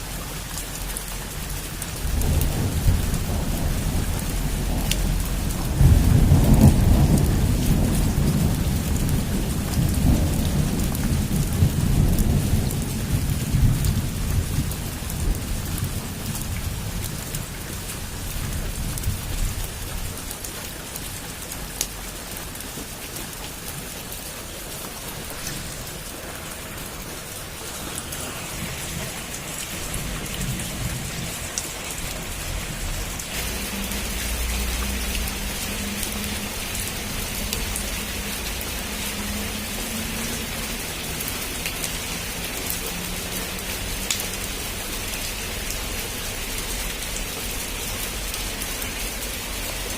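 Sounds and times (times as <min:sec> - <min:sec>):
heavy rain on a roof: 0:00.0 - 0:49.9
thunder rolling: 0:02.0 - 0:17.0, 0:25.0 - 0:38.5.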